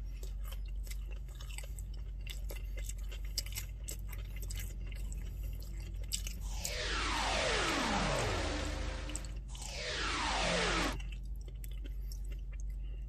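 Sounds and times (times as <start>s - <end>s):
person chewing crispy food: 0.0s - 6.4s, 11.1s - 13.0s
steady low hum: 6.3s - 11.0s.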